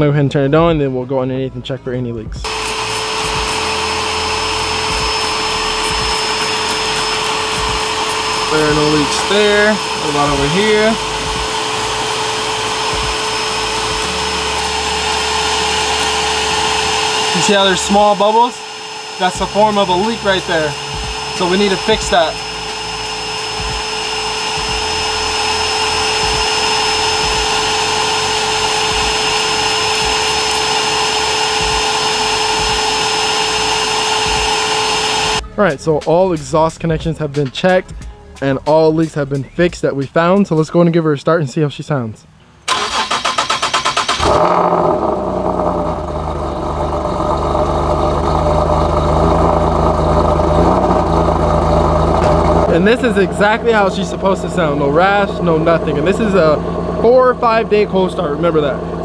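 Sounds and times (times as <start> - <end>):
car engine idling: 2.4 - 35.4, 42.5 - 59.0
vacuum cleaner motor whining: 2.4 - 35.4, 42.7 - 59.0
air rushing through hose: 2.5 - 35.4
car engine starter cranking: 42.7 - 59.0.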